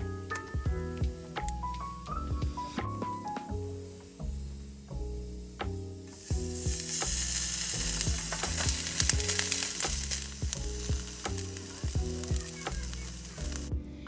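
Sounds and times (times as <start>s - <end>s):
background music: 0.0s - 14.0s
food sizzling in a pan: 3.2s - 13.7s.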